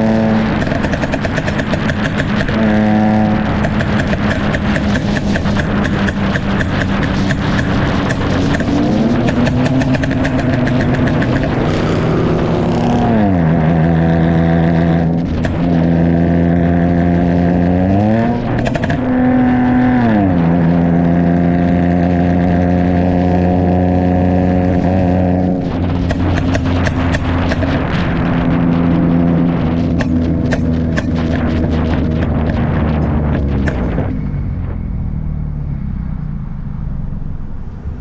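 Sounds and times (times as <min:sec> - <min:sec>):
car engine shifting through gears: 0:00.0 - 0:38.0
exhaust crackling: 0:00.0 - 0:38.0.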